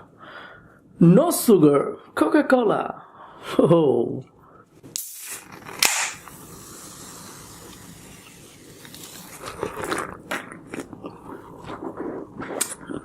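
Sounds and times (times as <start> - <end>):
can opening click and pop: 4.9 - 6.3
drink fizzing: 5.0 - 10.4.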